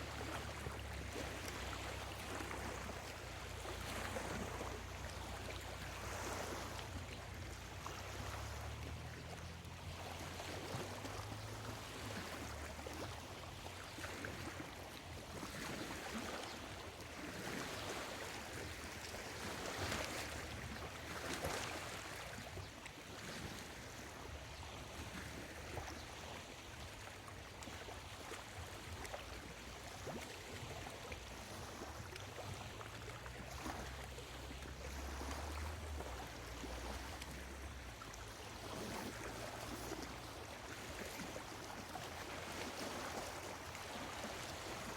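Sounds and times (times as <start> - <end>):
lake waves lapping on shore: 0.0 - 44.9.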